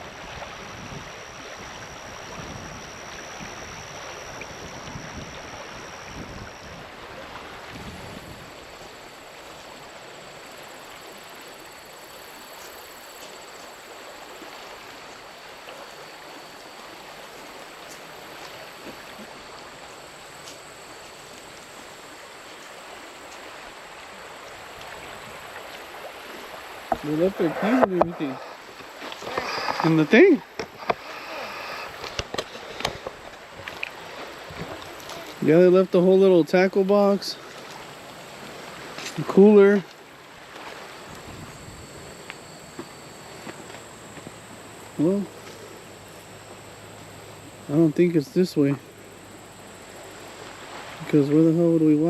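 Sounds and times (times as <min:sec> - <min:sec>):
wind buffeting microphone: 0:00.0 - 0:08.9, 0:41.0 - 0:42.2
river water flowing: 0:00.0 - 0:52.0.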